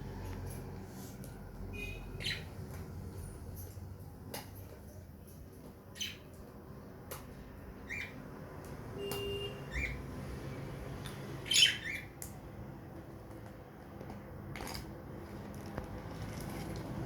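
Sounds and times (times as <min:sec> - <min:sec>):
budgerigars chirping and squawking: 0:01.8 - 0:02.5, 0:07.8 - 0:08.2, 0:09.7 - 0:10.0, 0:11.4 - 0:12.1.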